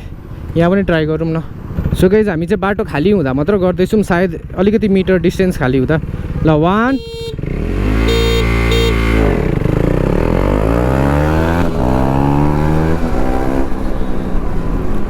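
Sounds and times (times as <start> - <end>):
motorcycle engine revving: 4.8 - 15.0
short high beeps: 8.0 - 9.1.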